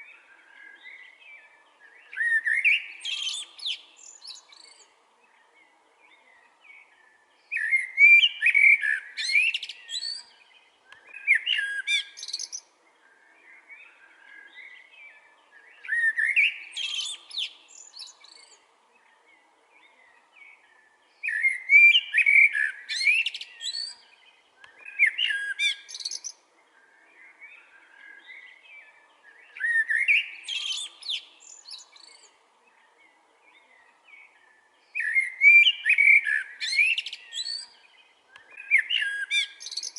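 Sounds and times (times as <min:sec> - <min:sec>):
blackbird singing: 0:00.0 - 0:39.9
soft bird chirps: 0:00.0 - 0:39.9.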